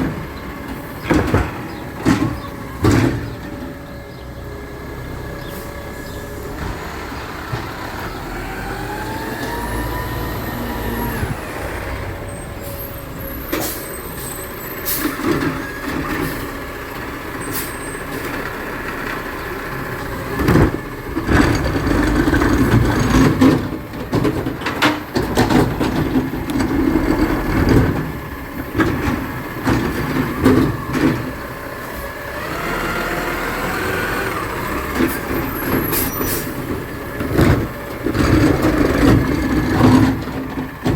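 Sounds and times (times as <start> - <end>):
garbage truck engine revving: 0.0 - 40.9
loud metal clanks and bangs: 1.0 - 3.8.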